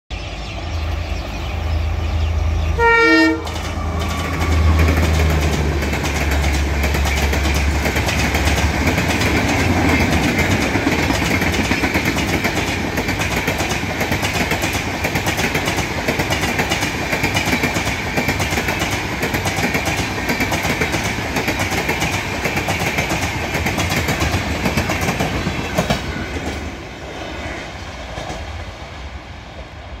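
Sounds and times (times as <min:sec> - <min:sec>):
train horn blast: 0:02.8 - 0:03.6
train wheels clattering on rails: 0:03.3 - 0:28.7.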